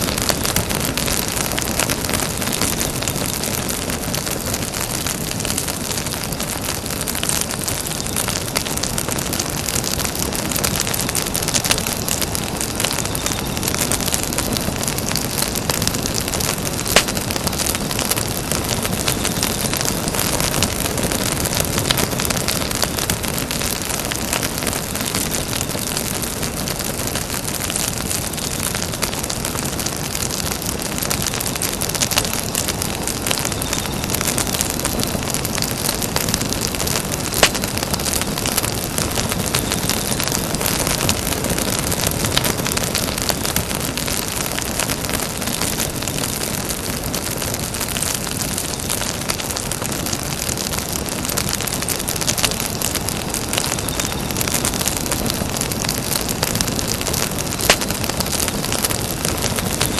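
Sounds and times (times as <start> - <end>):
campfire hissing and crackling: 0.0 - 59.9
loud fire pop: 56.4 - 58.5.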